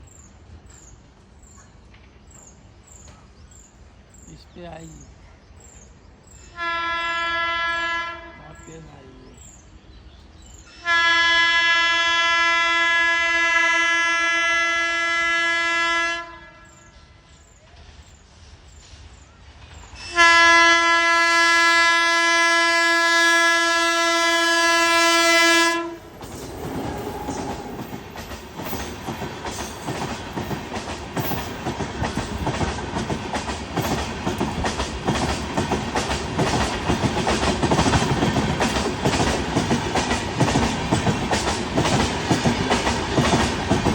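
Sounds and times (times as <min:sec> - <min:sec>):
locomotive horn blasts: 0:06.5 - 0:08.7, 0:10.7 - 0:17.1, 0:20.0 - 0:26.0
train wheels clattering over rail joints: 0:26.0 - 0:43.9.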